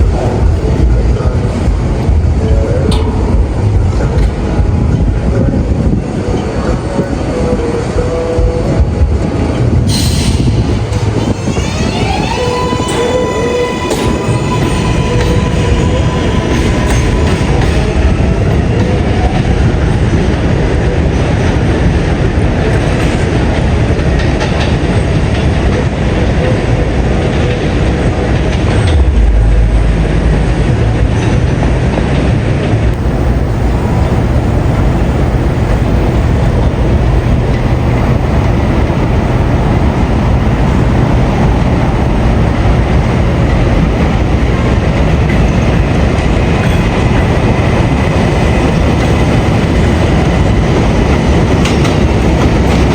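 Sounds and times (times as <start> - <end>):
subway train rumbling: 0.0 - 52.9
deep low hum: 28.9 - 31.3.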